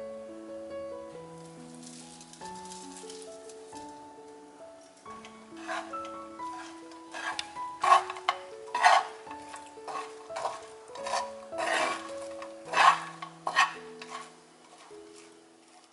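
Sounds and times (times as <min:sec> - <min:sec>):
background music: 0:00.0 - 0:15.9
spatula scraping a pan: 0:05.2 - 0:15.9.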